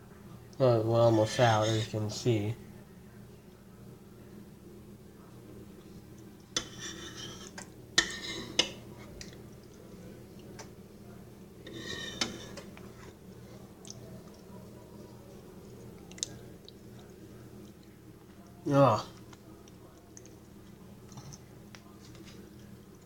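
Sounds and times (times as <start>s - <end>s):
spoon scraping and clinking bowl: 6.6s - 8.7s, 11.7s - 12.6s.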